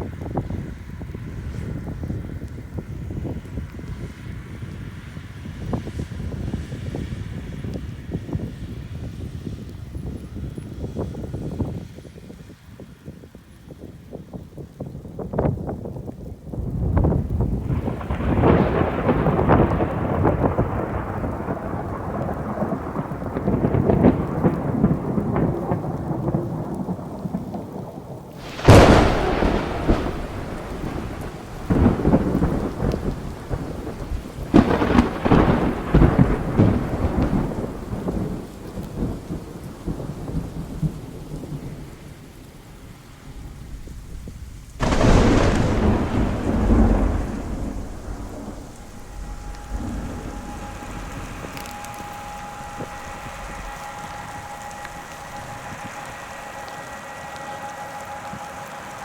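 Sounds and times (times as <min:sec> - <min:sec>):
thunder rumbling: 0:00.0 - 0:11.9, 0:15.1 - 0:59.0
loud thunder crack: 0:16.7 - 0:59.0.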